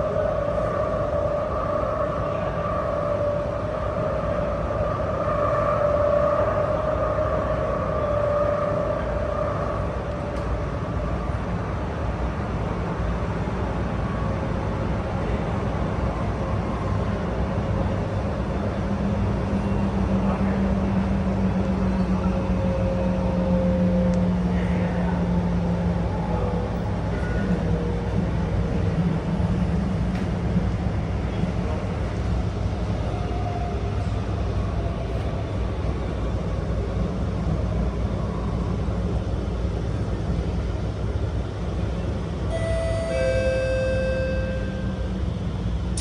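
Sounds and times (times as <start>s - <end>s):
low hum: 42.5s - 46.0s.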